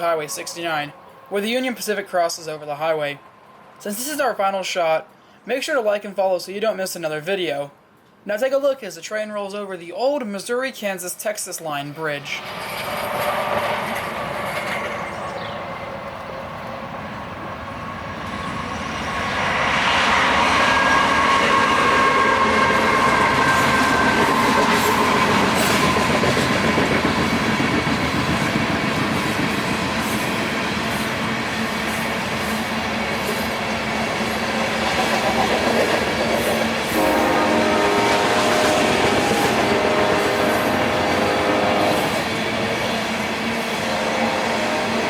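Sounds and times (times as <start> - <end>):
train wheels clattering on rails: 12.4 - 16.7, 20.4 - 37.2.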